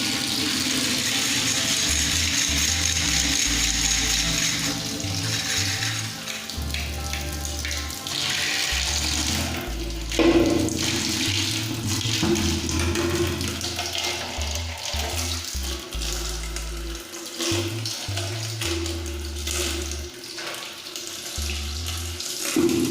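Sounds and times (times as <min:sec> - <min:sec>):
background music: 0:00.0 - 0:22.9
water spraying and splashing: 0:00.0 - 0:22.9
steady hum: 0:08.7 - 0:20.1, 0:21.4 - 0:22.3.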